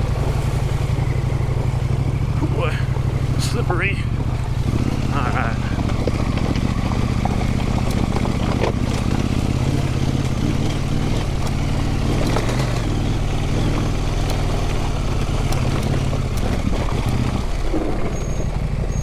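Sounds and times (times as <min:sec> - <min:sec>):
motorcycle engine running: 0:00.0 - 0:19.0
faint clicks: 0:03.4 - 0:18.2.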